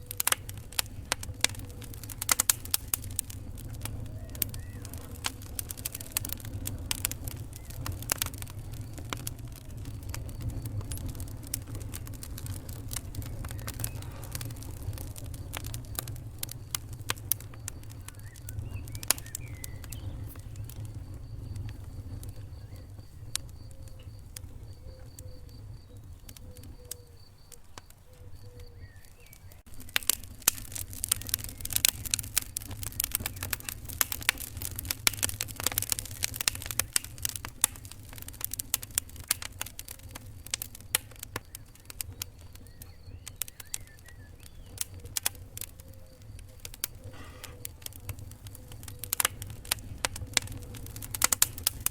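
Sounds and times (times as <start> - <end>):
wood fire crackling: 0.0 - 51.9
low rumble: 0.5 - 24.8.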